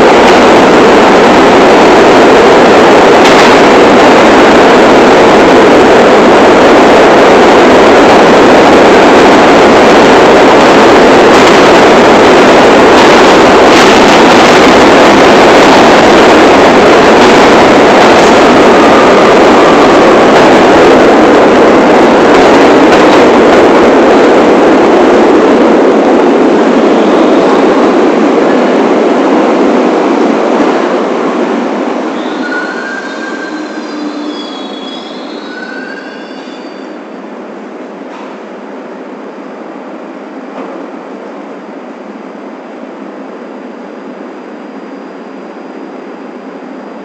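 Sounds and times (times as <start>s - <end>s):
subway train running: 0.0s - 47.0s.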